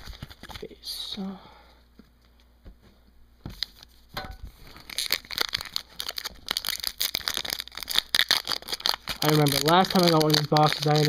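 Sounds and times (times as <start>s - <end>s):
foil wrapper crinkling: 0.0s - 1.0s, 3.6s - 11.0s.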